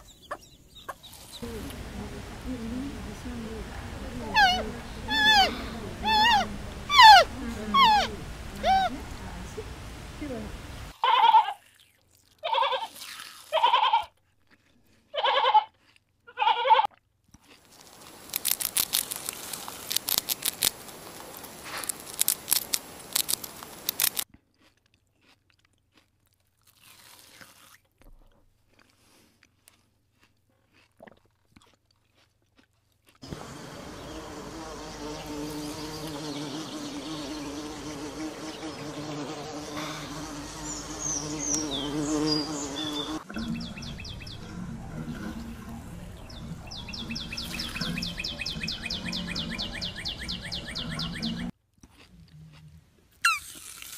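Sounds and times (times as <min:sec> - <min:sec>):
bumblebee buzzing: 0:01.4 - 0:10.9, 0:33.2 - 0:49.7
sheep bleating: 0:16.3 - 0:16.9
sheep chewing forage: 0:17.3 - 0:26.2, 0:28.6 - 0:51.1.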